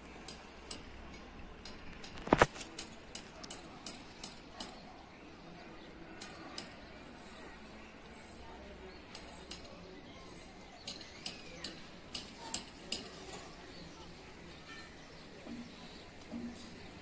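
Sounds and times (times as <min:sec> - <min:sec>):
metallic clicks and clinks: 0:00.2 - 0:05.0, 0:06.2 - 0:07.0, 0:09.0 - 0:10.0, 0:10.8 - 0:13.4.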